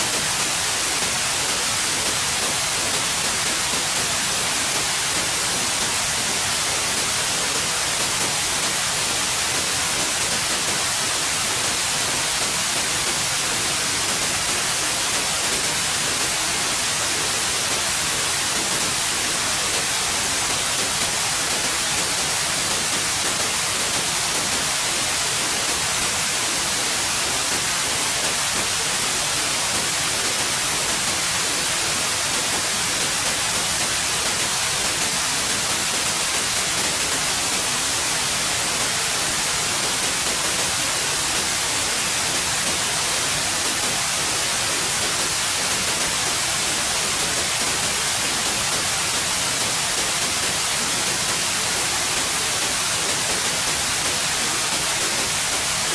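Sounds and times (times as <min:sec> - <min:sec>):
steady white noise hiss: 0:00.0 - 0:55.9.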